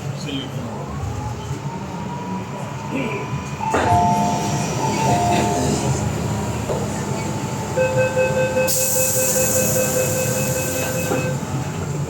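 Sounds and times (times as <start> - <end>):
electric train rumble: 0.0 - 12.0
high brake squeal: 8.5 - 11.4.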